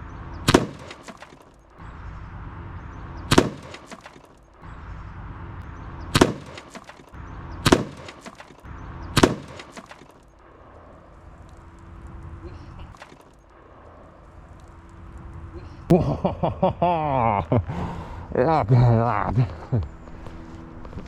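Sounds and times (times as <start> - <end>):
arrow hitting metal crack: 0.5 - 1.6, 3.3 - 4.4, 6.1 - 10.2, 12.9 - 13.3
debris clattering: 0.5 - 1.7, 3.3 - 4.6, 6.2 - 10.4.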